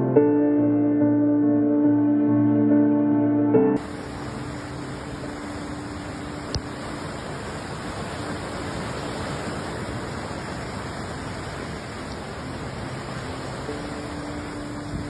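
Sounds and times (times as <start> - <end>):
water rushing: 3.8 - 15.0.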